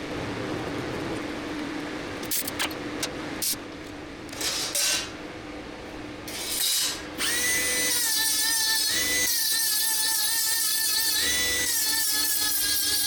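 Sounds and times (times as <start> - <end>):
sharp clicks: 2.2 - 3.6.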